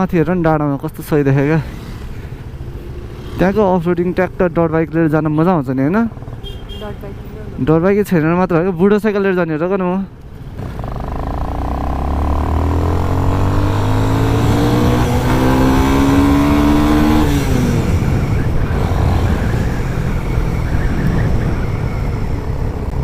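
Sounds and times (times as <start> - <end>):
road and wind noise: 0.0 - 23.0
motorcycle engine accelerating: 10.4 - 23.0.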